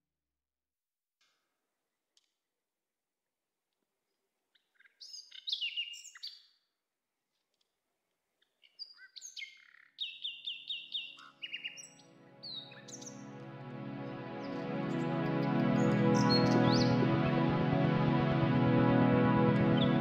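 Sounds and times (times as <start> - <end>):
birds chirping and whistling: 5.0 - 6.3, 8.8 - 13.3
sustained music chord: 12.1 - 20.0.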